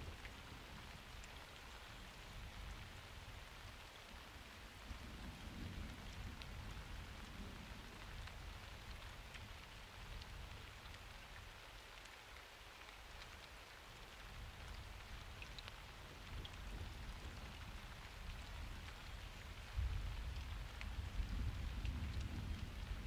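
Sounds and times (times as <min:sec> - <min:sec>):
rain falling: 0:00.0 - 0:23.0
raindrops ticking: 0:00.0 - 0:23.0.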